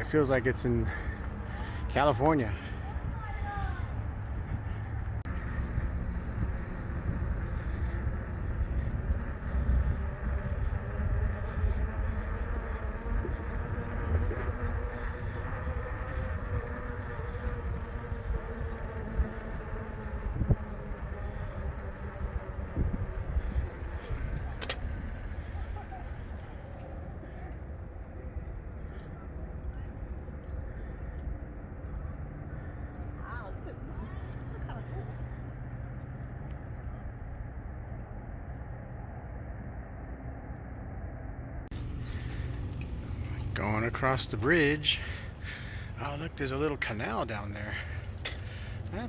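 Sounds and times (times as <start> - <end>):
bicycle rolling rattle: 0.0 - 40.9, 41.7 - 49.0
wind on microphone: 2.8 - 26.7.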